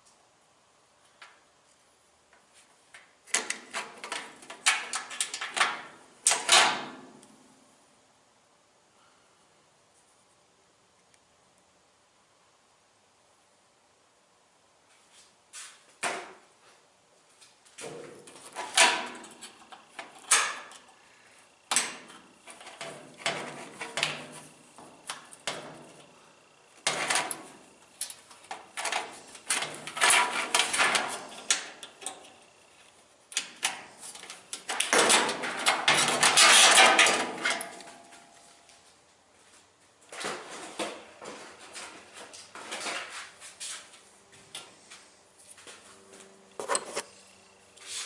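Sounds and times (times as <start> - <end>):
scraping rattles: 28.5 - 32.2, 34.0 - 37.9
metal parts clanking and knocking: 34.6 - 38.0.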